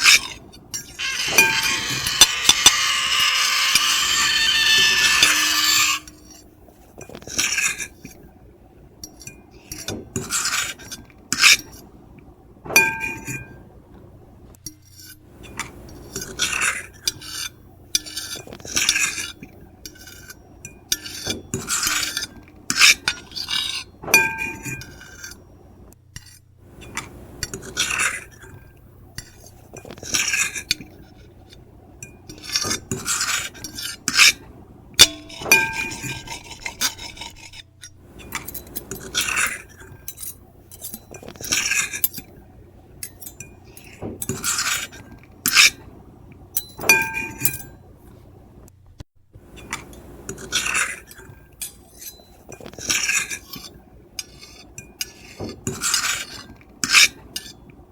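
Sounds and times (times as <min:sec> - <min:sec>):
cutlery scraping plate: 0:00.0 - 0:08.2, 0:09.1 - 0:11.9, 0:12.7 - 0:13.6, 0:14.7 - 0:25.5, 0:26.2 - 0:42.4, 0:43.0 - 0:45.9, 0:46.6 - 0:47.8, 0:49.6 - 0:57.7
plate ringing tone: 0:00.9 - 0:06.3, 0:12.8 - 0:13.7, 0:24.1 - 0:25.8, 0:35.0 - 0:36.5, 0:46.6 - 0:47.9
cutlery clinks: 0:12.7 - 0:13.6, 0:19.9 - 0:25.5, 0:35.0 - 0:36.6, 0:46.6 - 0:47.8.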